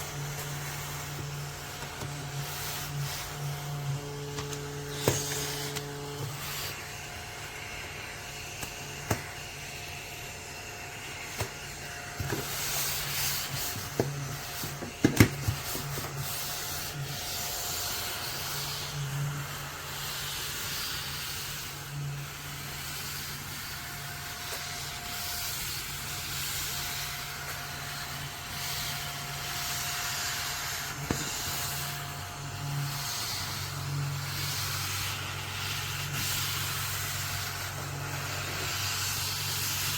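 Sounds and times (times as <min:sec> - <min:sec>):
plastic rubbing and handling: 0:00.0 - 0:09.4, 0:11.2 - 0:17.6.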